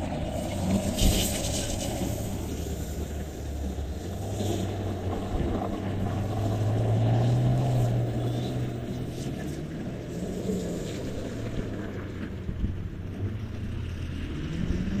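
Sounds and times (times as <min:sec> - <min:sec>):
sports car engine revving: 0:00.6 - 0:12.2.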